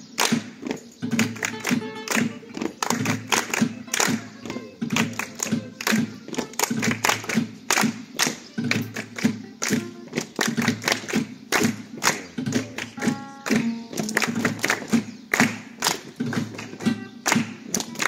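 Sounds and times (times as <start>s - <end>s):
flamenco music: 0.0s - 18.0s
hand claps: 0.1s - 18.0s
foot stamps: 0.2s - 18.0s.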